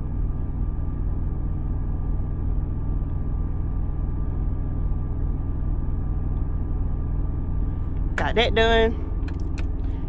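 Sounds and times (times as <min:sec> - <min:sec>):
air-conditioning blowing: 0:00.0 - 0:10.0
engine drone: 0:00.0 - 0:10.0.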